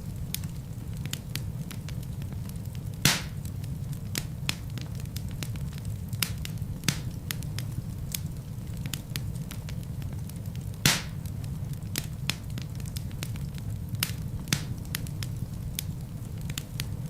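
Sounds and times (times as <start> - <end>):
rush of flame: 0.0 - 17.0
wood fire crackling: 0.0 - 17.0.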